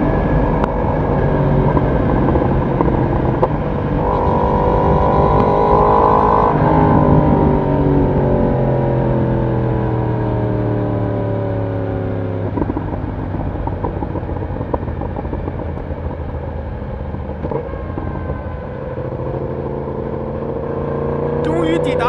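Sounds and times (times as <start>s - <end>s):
motorcycle engine and exhaust: 0.0s - 21.6s
exhaust crackles and ticks: 12.5s - 16.4s.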